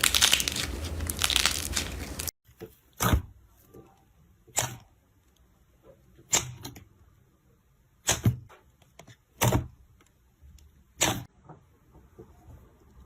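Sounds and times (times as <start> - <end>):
slime popping: 0.0 - 2.3.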